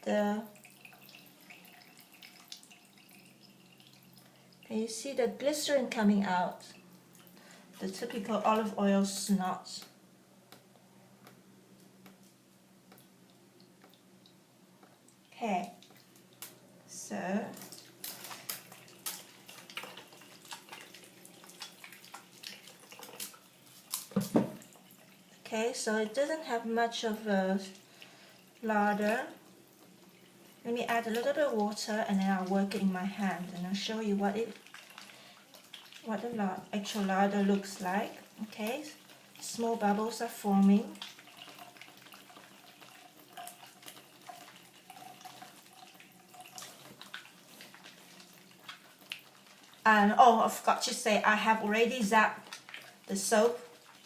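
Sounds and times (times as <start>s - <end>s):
wet squishing of soap lather: 0.5s - 4.9s, 15.4s - 16.6s, 17.4s - 54.0s.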